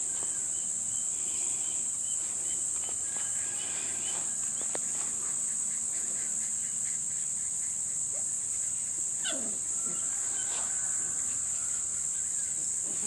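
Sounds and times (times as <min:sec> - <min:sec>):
high-pitched insect chorus: 0:00.0 - 0:13.0
puppy whimpering: 0:09.2 - 0:10.0.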